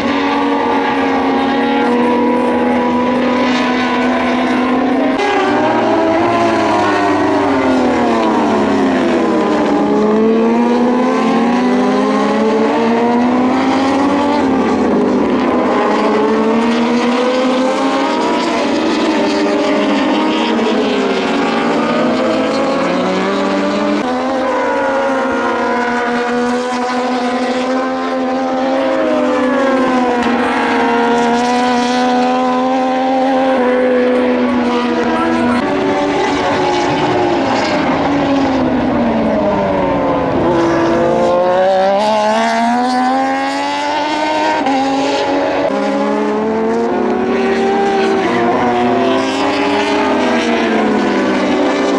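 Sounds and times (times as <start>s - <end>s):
motorcycle engines racing: 0.0s - 51.9s.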